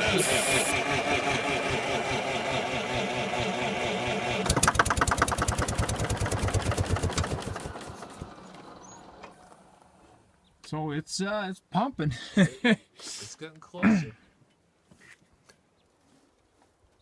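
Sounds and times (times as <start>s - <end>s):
starter cranking engine: 0.0s - 9.6s
engine firing in loud pops: 4.4s - 7.6s.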